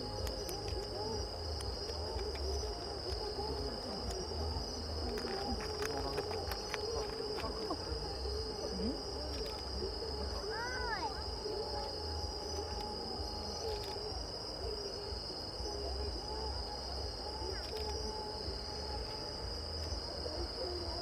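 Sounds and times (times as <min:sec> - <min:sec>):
crickets trilling: 0:00.0 - 0:21.0
crowd murmuring: 0:00.0 - 0:21.0
faint sharp clicks: 0:00.1 - 0:03.3.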